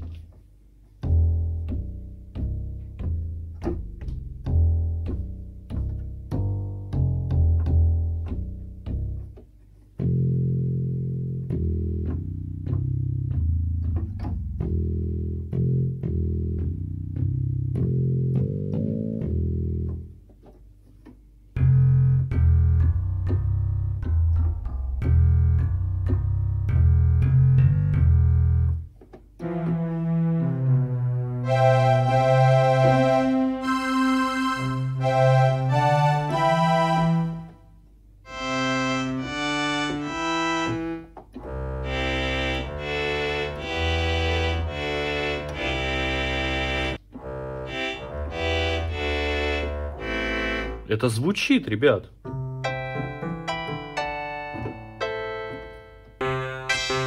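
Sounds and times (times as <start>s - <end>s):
electronic keyboard playing: 10.0s - 20.2s, 21.6s - 37.7s, 38.3s - 51.1s, 52.2s - 57.0s.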